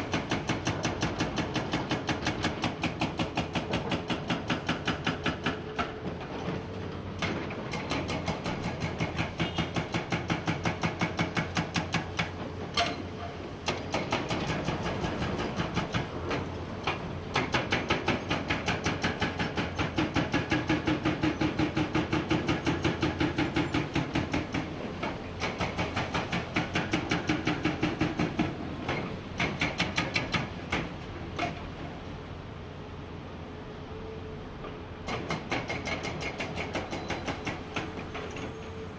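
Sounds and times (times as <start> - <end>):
hydraulic breaker hammering rock: 7.2 - 13.1, 13.7 - 31.6, 35.1 - 38.5.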